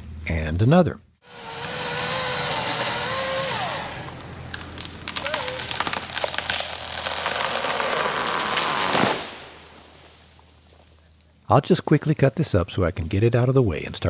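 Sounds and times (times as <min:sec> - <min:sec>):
electric chainsaw whining: 0:01.2 - 0:04.9
trees cracking and snapping: 0:01.4 - 0:10.9.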